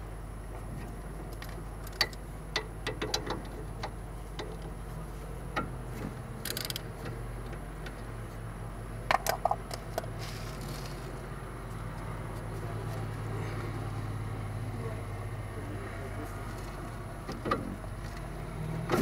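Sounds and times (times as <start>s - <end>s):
short hissing scrape: 10.2s - 11.0s.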